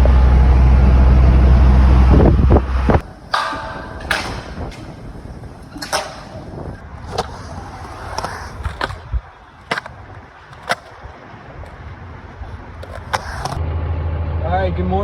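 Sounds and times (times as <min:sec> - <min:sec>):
skateboard rolling on pavement: 0:00.0 - 0:13.6
skateboard tail cracks: 0:02.9 - 0:13.6.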